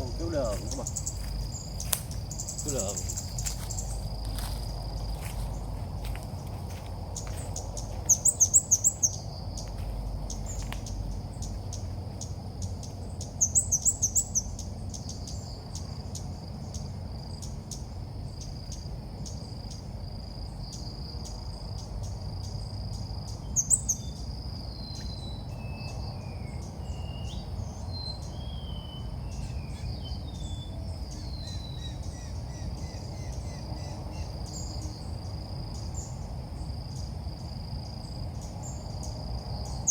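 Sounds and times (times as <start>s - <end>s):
bird rapid high chirps: 0.0s - 4.1s, 7.2s - 9.4s, 12.7s - 15.6s
high insect drone: 0.0s - 39.9s.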